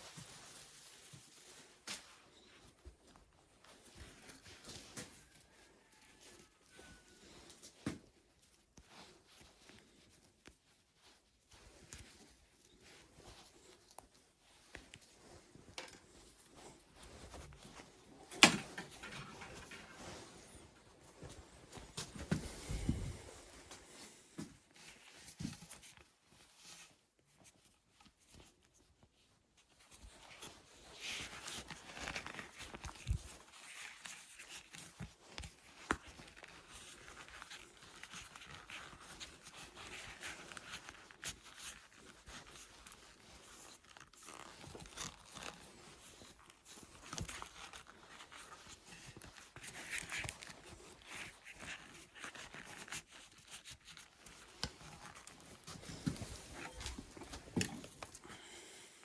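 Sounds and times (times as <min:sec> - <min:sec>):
scraping and rustling strokes: 0:00.0 - 0:28.8.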